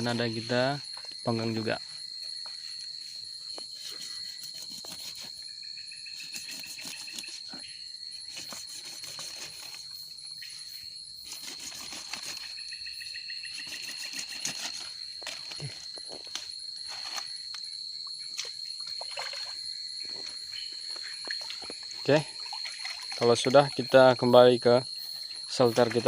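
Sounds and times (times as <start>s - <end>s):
insect pulsing trill: 0.0s - 26.0s
high-pitched insect shrill: 2.5s - 16.0s.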